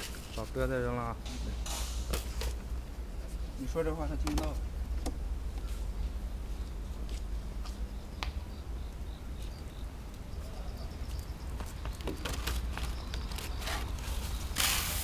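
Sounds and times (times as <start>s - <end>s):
short clicks and hisses: 14.5s - 15.0s.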